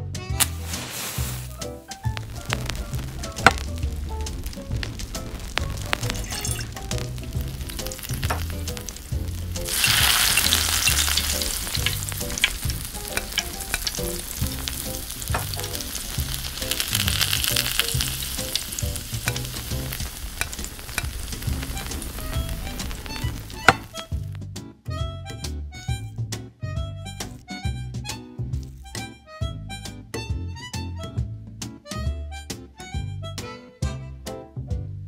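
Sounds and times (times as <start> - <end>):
soft background music: 0.0 - 35.0
hot oil sizzling in a wok: 0.4 - 24.3.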